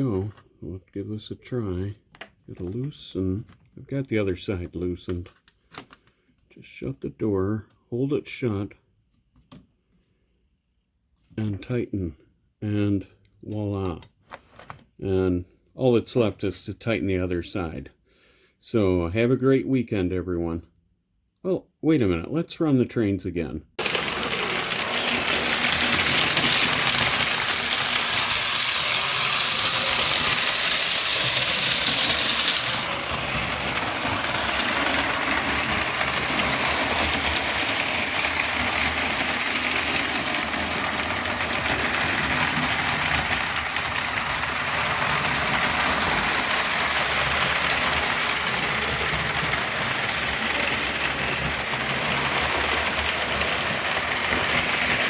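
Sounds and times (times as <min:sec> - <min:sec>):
model train wheels rattling: 0:23.8 - 0:55.0.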